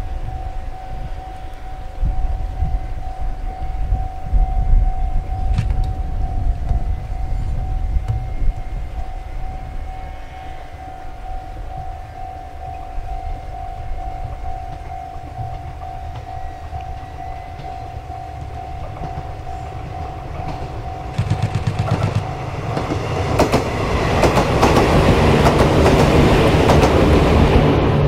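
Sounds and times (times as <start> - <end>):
steady background tone: 0.0 - 28.0
train wheels clicking over rail joints: 14.3 - 27.6.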